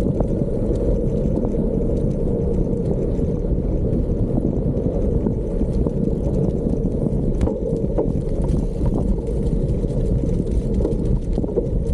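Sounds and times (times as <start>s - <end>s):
bicycle tyres rolling on gravel: 0.0s - 11.9s
small clicks and rattles: 0.0s - 11.9s
wind buffeting microphone: 0.0s - 11.9s.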